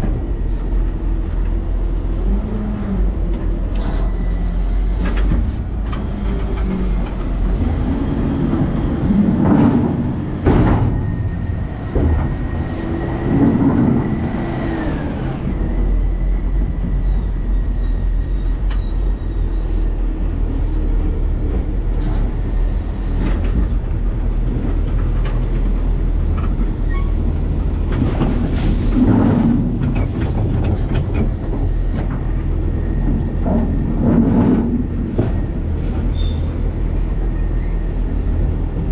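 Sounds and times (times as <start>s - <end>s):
heavy engine and machinery rumble: 0.0s - 38.9s
sharp knocks and bangs: 8.4s - 14.6s.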